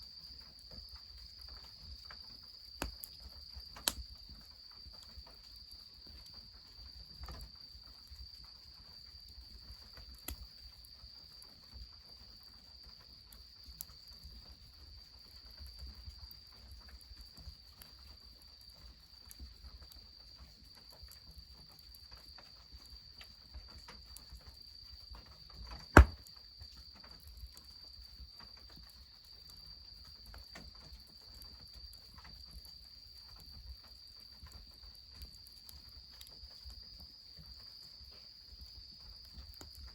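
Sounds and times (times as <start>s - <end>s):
loud sharp crack: 26.0s - 26.2s.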